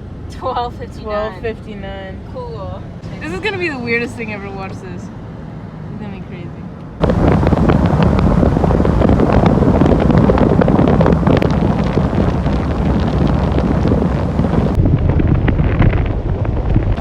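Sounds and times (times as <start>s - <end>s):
car road noise: 0.0s - 17.0s
wind buffeting microphone: 7.0s - 17.0s.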